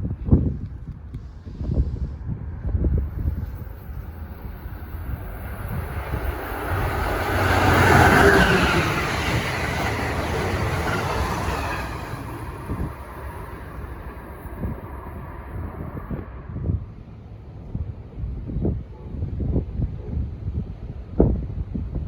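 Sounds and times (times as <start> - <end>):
train passing: 1.1 - 18.1.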